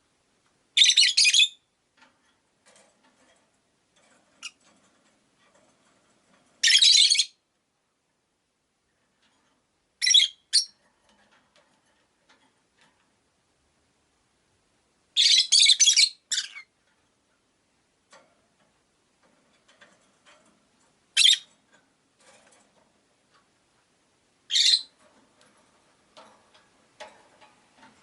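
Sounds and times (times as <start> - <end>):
lovebirds giving shrill calls: 0.8 - 1.6, 6.6 - 7.4, 10.0 - 10.8, 15.2 - 16.7, 21.2 - 21.5, 24.5 - 24.9.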